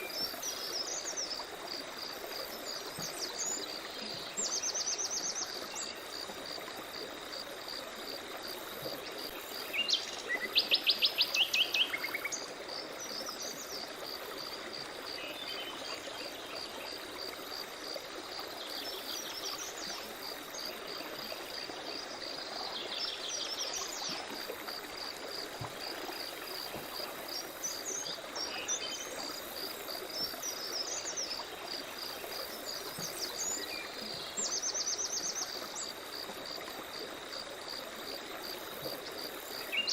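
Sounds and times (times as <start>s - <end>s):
songbirds singing: 39.6s - 39.9s.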